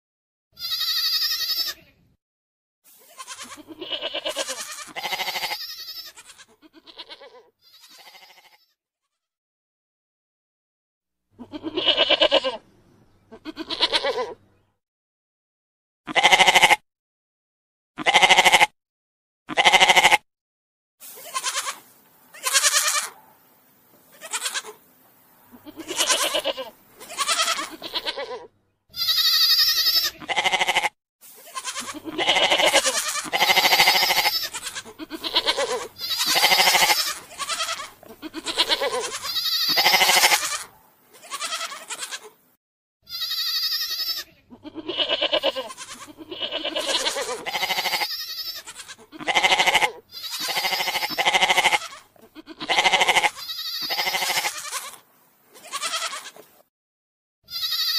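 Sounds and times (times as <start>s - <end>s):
goats bleating: 0.6s - 1.9s, 3.0s - 8.7s, 11.4s - 12.6s, 13.3s - 14.4s, 16.1s - 16.8s, 18.0s - 18.7s, 19.5s - 20.2s, 21.2s - 23.2s, 24.1s - 24.8s, 25.4s - 42.4s, 43.1s - 55.0s, 55.6s - 56.6s, 57.5s - 57.9s.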